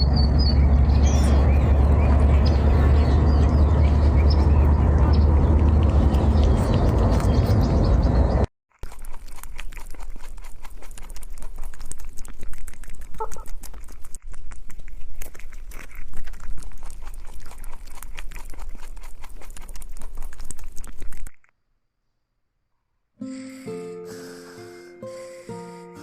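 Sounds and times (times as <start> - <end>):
low hum: 0.0 - 8.5.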